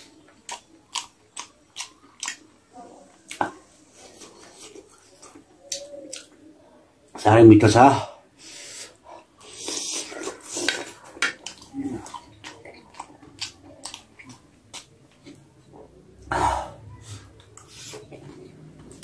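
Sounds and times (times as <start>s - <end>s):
wet chewing and mouth clicks: 0.0s - 2.6s, 4.2s - 6.4s, 9.4s - 15.5s.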